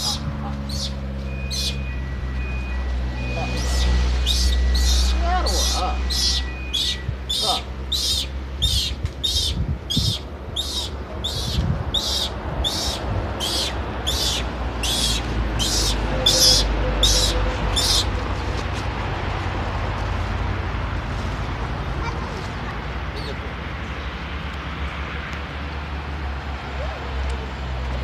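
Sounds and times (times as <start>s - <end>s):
bird high chirps: 0.0s - 2.0s, 2.6s - 18.1s
steady low rumble: 2.3s - 20.5s.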